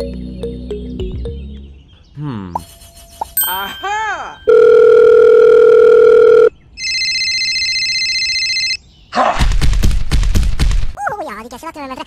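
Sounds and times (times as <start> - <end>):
electronic phone ring: 4.4 - 8.8.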